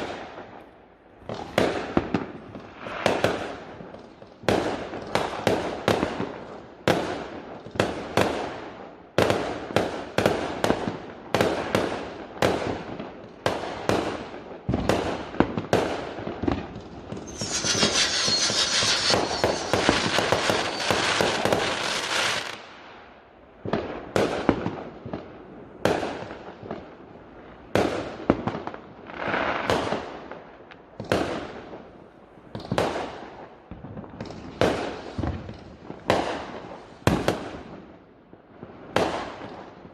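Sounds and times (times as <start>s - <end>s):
fireworks banging: 16.5s - 22.7s
fireworks hissing crackle: 16.6s - 22.9s.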